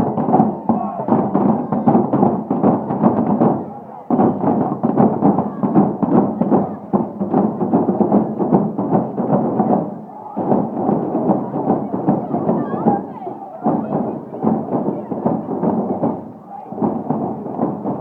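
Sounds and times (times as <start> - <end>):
crowd chatter: 0.0 - 18.0
fireworks bangs and thuds: 0.0 - 18.0.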